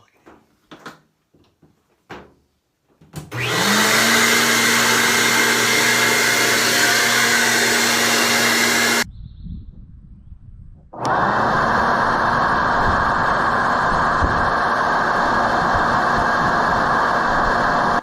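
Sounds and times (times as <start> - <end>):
blower hum and rush of air: 3.4 - 9.1, 10.9 - 18.0.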